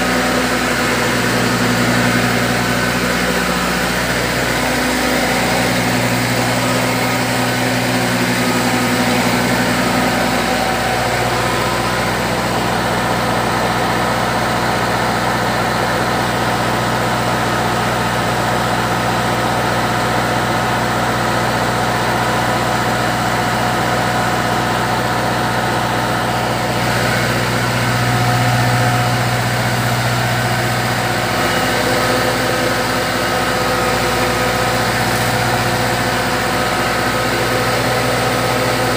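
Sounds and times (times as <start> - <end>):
deeper hum: 0.0 - 14.4
machine engine humming: 0.0 - 38.9.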